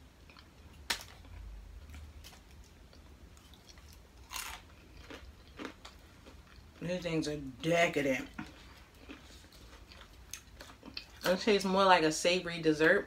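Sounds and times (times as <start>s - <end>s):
crisp crunch of biting food: 3.4s - 6.6s.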